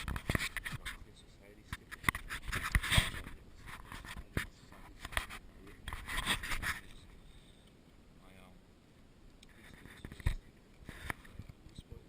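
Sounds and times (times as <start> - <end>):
scratchy rubbing: 0.0 - 7.0, 9.5 - 11.4.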